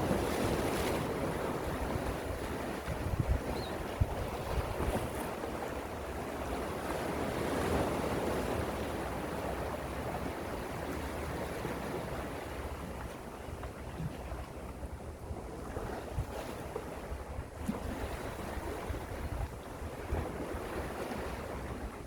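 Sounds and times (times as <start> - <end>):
sea waves washing in: 0.0 - 13.1.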